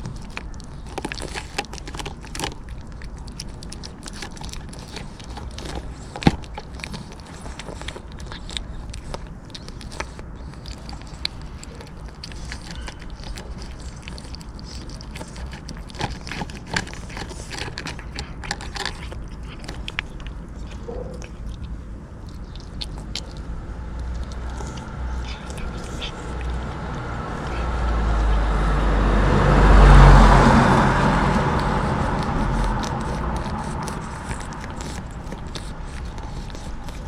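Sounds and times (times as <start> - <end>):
cat chewing crunchy food: 0.0 - 37.0
low rumble: 23.3 - 35.4.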